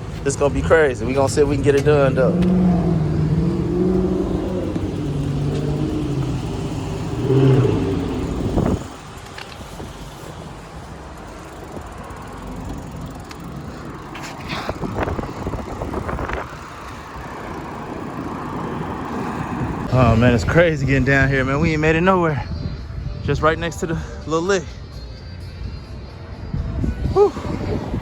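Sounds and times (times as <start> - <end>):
vehicle engine running: 0.0 - 21.7
quiet street noise: 0.0 - 28.0.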